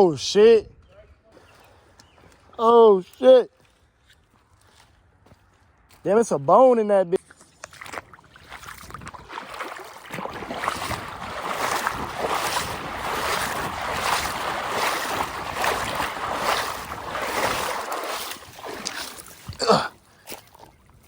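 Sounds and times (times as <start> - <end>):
legs splashing through water: 7.6 - 21.0.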